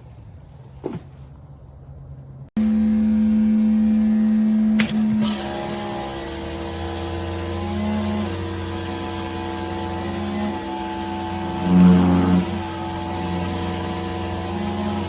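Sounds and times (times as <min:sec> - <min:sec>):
pressure washer motor humming: 0:02.6 - 0:15.0
click: 0:04.8 - 0:05.5.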